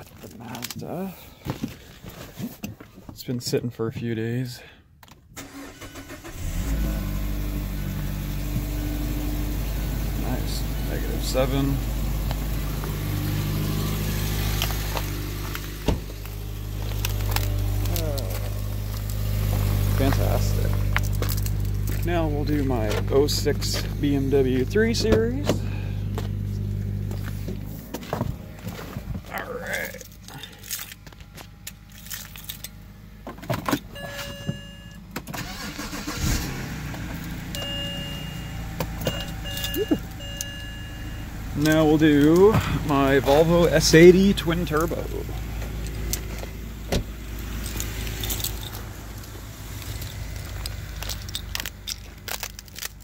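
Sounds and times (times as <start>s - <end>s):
car engine idling: 5.4s - 53.0s
keys and clicks: 12.2s - 27.7s, 33.5s - 36.2s, 36.9s - 46.6s, 47.3s - 53.0s
electronic beeping tones: 34.0s - 35.0s, 37.6s - 41.3s.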